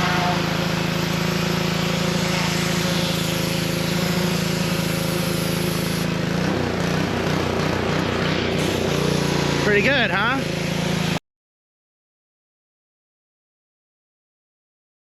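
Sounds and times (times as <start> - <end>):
high-pressure water spray hissing: 0.0 - 11.2
pressure washer engine running: 0.0 - 11.2.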